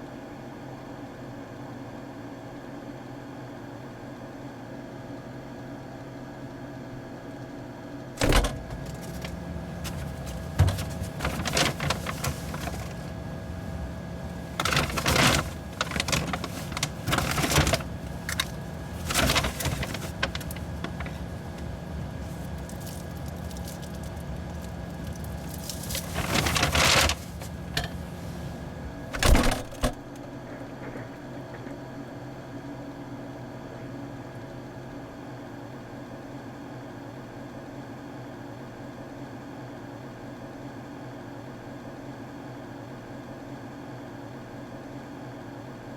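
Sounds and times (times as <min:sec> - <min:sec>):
electrical hum: 0:06.9 - 0:34.9
objects clattering and knocking: 0:08.2 - 0:30.0.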